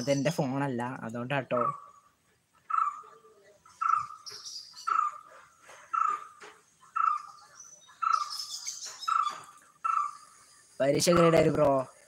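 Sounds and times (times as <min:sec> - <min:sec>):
faint high bird chirps: 0:02.7 - 0:11.5.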